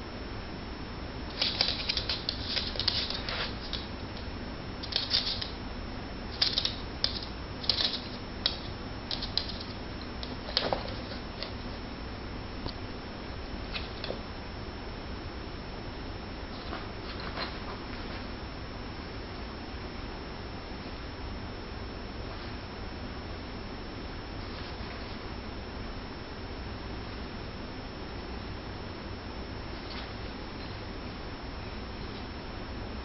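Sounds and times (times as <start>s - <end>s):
steady low hum: 0.0s - 33.0s
paws and claws scrabbling: 1.3s - 5.6s, 6.4s - 11.8s, 16.5s - 18.3s, 29.8s - 30.9s.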